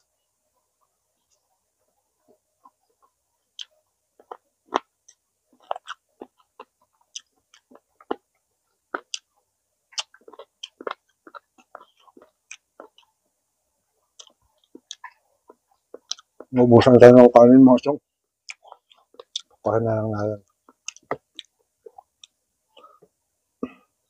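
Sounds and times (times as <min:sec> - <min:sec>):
person chewing and crunching: 0:02.6 - 0:13.2, 0:14.1 - 0:16.5, 0:18.4 - 0:19.7, 0:20.4 - 0:23.1.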